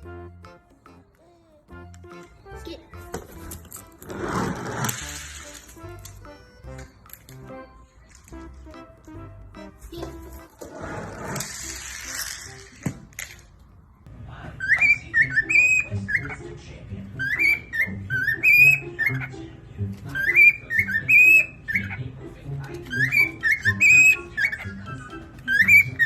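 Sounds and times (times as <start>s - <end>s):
cockatiel whistling a tune: 14.6s - 16.5s, 17.2s - 19.4s, 20.1s - 22.0s, 22.8s - 26.0s.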